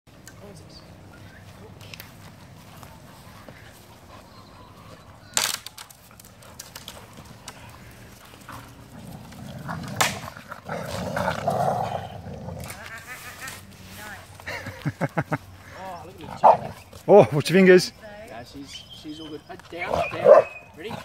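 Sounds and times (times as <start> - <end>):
dogs growling: 6.1 - 12.9, 15.6 - 17.0, 19.7 - 21.0.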